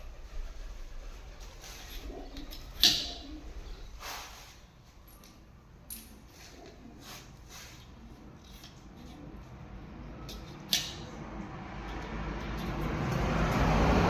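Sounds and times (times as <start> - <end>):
light clicks and scrapes: 6.0 - 9.6.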